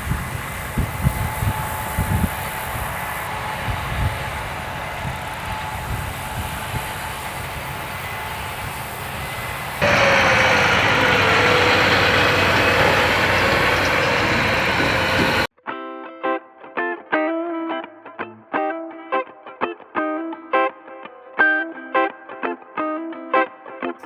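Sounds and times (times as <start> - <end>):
engine and machinery noise: 0.0 - 15.5
electric guitar music: 15.7 - 24.0.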